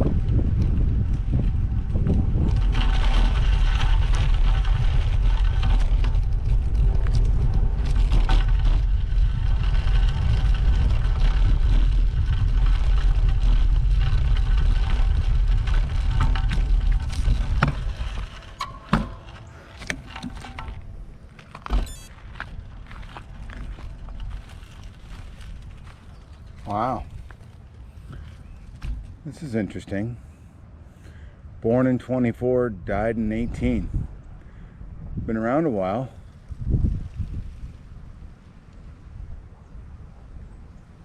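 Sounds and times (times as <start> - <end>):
wind buffeting microphone: 0.0 - 29.5, 32.5 - 41.0
bike tyre and drivetrain noise: 0.0 - 31.4, 33.3 - 41.0
bike clicks: 0.1 - 29.1.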